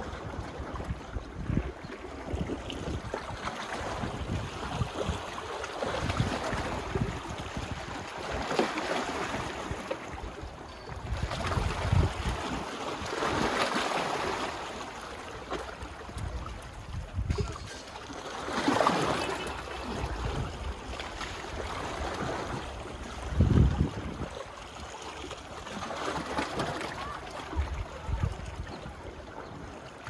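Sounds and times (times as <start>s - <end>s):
wind buffeting microphone: 0.0s - 8.5s, 9.2s - 12.7s, 16.0s - 18.0s, 19.8s - 24.4s, 27.4s - 29.6s
small waves washing on beach: 0.0s - 30.0s.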